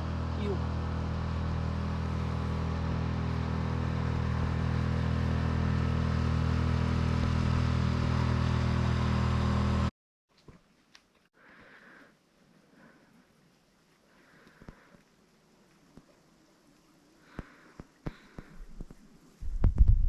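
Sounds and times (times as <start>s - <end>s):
motor engine humming: 0.0s - 9.9s.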